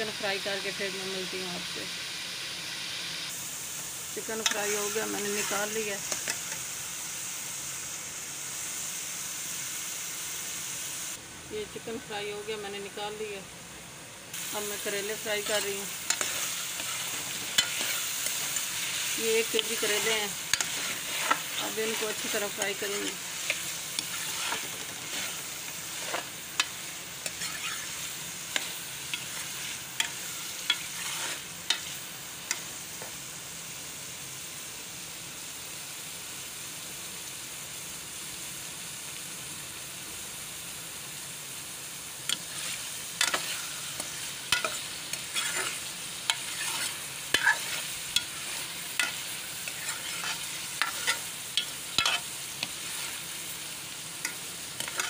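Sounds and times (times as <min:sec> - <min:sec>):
vegetables sizzling in oil: 0:00.0 - 0:55.0
metal spoon scraping a pan: 0:04.4 - 0:06.6, 0:14.8 - 0:32.7, 0:42.3 - 0:53.3, 0:54.2 - 0:55.0.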